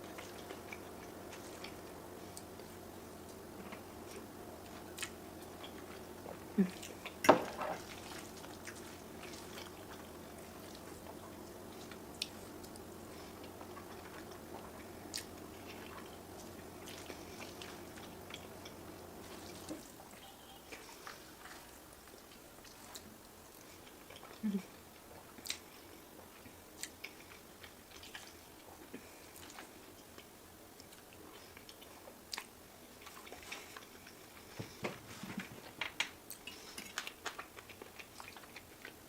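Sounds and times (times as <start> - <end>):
low hum: 0.0 - 24.8.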